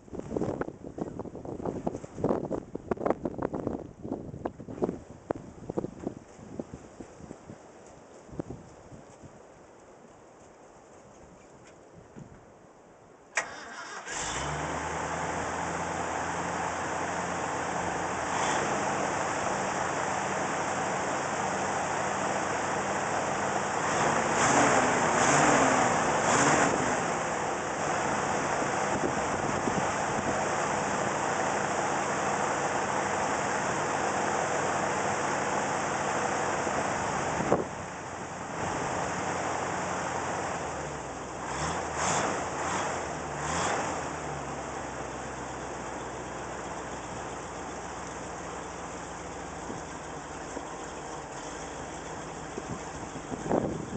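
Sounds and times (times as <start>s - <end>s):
engine revving: 13.4s - 53.9s
truck engine running: 13.4s - 53.9s.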